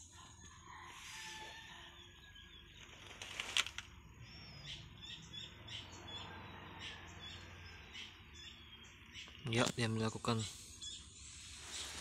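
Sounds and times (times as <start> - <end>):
small birds chirping: 0.0 - 12.0
brief rustle: 2.8 - 3.9.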